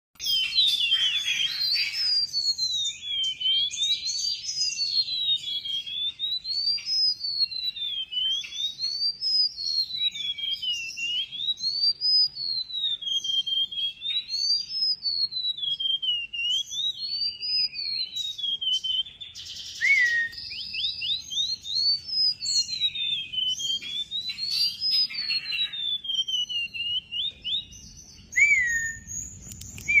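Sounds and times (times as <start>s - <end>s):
bird singing high sliding whistle: 0.2s - 30.0s
short bird chirps: 16.1s - 30.0s.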